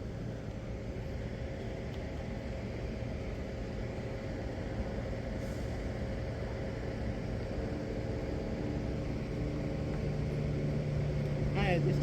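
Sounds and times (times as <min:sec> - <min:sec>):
electric train humming at platform: 0:00.0 - 0:12.0.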